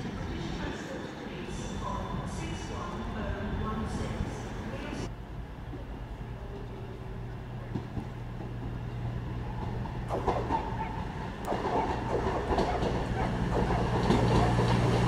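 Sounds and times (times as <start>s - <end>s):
wheels clattering over rails: 5.9s - 15.0s.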